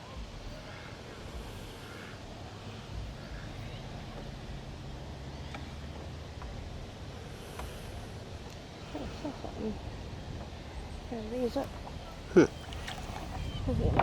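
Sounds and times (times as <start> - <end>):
steady low rumble: 0.0 - 14.0
faint ticks: 5.4 - 8.7.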